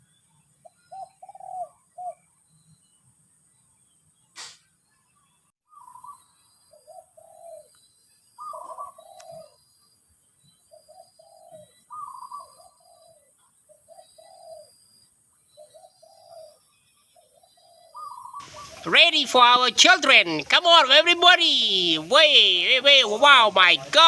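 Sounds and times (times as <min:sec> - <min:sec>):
dove cooing: 0:00.9 - 0:02.2, 0:05.7 - 0:07.7, 0:08.4 - 0:09.6, 0:10.7 - 0:14.8, 0:15.6 - 0:16.6, 0:17.2 - 0:18.9.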